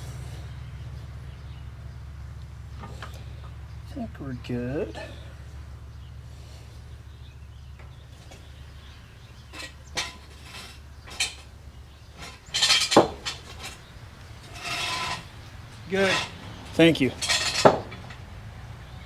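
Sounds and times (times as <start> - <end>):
metal hand tools clinking: 8.2 - 19.0.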